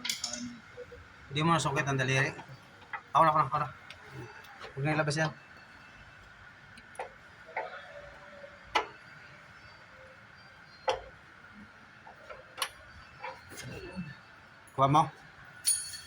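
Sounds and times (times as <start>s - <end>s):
metal parts and tools clicking: 0.0s - 0.6s, 15.6s - 16.0s.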